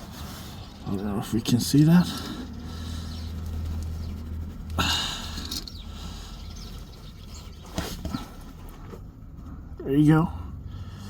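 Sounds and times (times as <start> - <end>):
steady low hum: 0.0 - 11.0
wrench scraping and squeaking: 1.6 - 6.0.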